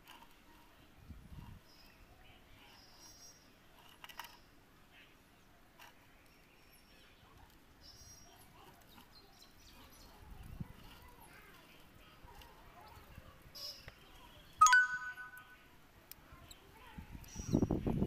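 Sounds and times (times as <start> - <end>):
faint high bird chirps: 14.6 - 15.6.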